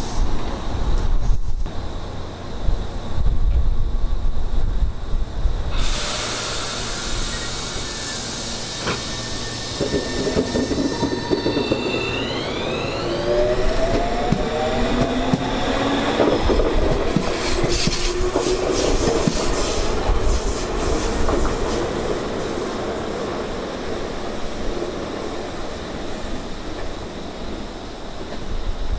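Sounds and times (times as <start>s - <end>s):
wind rumble on microphone: 0.0s - 6.0s
electric train motor whine: 5.4s - 19.1s
train wheels clicking over rail joints: 5.7s - 22.3s.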